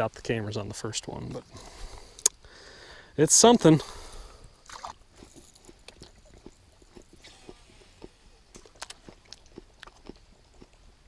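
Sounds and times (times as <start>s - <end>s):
person chewing apple crunches: 4.5s - 11.0s.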